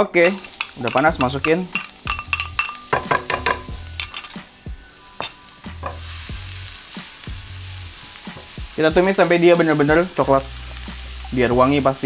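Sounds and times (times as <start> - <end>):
garlic sizzling in hot oil: 0.0 - 12.0
spatula tapping and scraping pan: 0.2 - 4.4.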